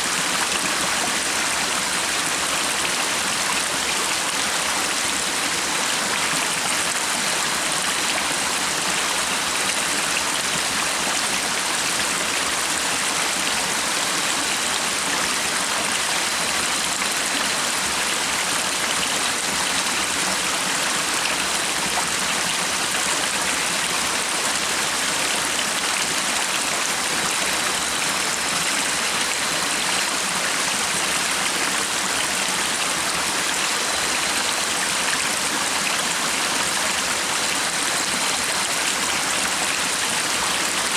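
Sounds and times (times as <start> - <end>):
stream of water running: 0.0 - 40.9.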